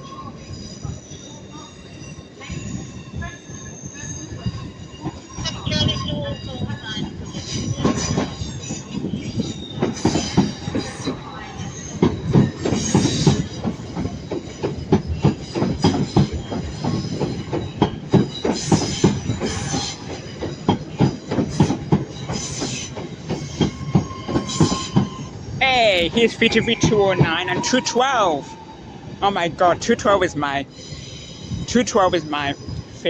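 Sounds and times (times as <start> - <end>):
train wheel squeal: 0.0 - 29.3, 30.7 - 33.0
train wheels clattering: 6.6 - 28.6.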